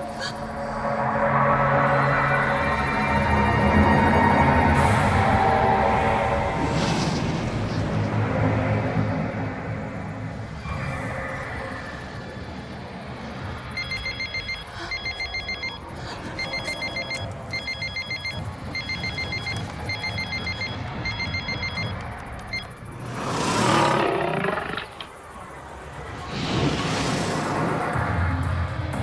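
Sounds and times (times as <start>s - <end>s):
rush of noise: 0.0s - 29.0s
electronic phone ringtone trill: 13.7s - 22.7s.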